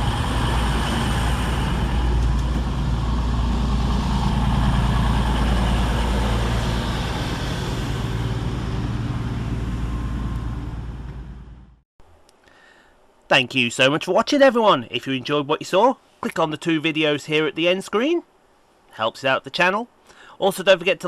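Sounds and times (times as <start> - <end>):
train engines running: 0.0 - 11.8.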